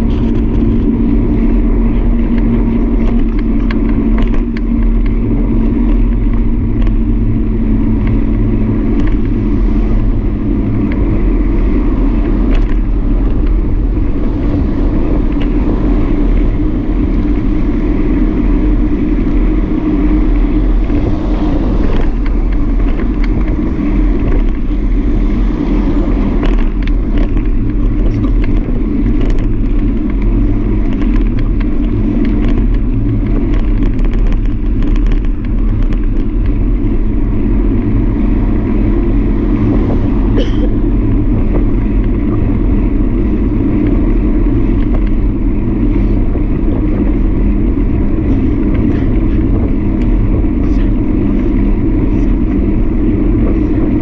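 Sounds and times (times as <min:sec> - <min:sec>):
small clicks and rattles: 0:00.0 - 0:09.4, 0:21.8 - 0:25.0, 0:26.2 - 0:38.1
wind and road noise: 0:00.0 - 0:54.0.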